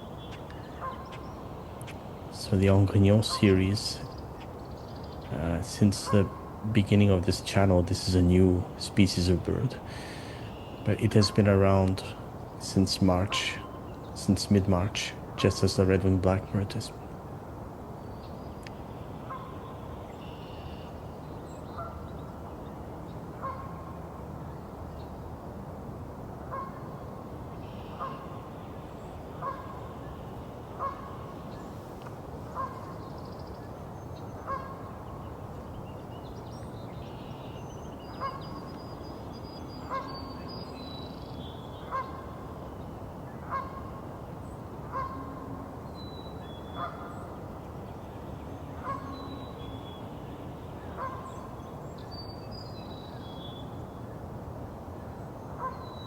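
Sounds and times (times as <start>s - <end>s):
small birds calling: 0.0s - 17.2s, 18.0s - 23.9s, 26.5s - 54.0s
goose honking: 3.2s - 4.0s, 44.9s - 45.4s.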